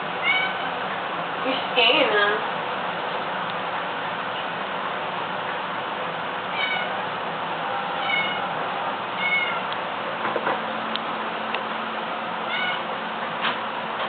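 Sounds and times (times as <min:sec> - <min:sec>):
cats meowing: 0:00.2 - 0:00.8, 0:06.5 - 0:07.0, 0:07.9 - 0:08.6, 0:09.2 - 0:09.7, 0:12.4 - 0:12.9.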